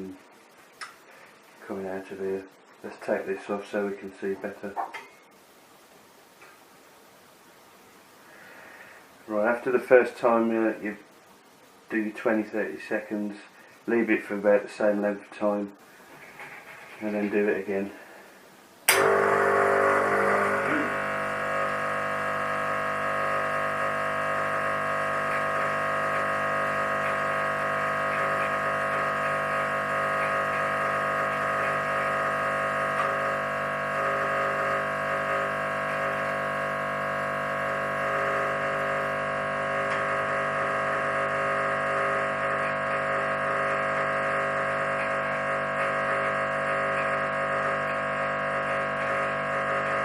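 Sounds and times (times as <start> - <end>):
espresso machine pump humming: 18.9 - 50.0.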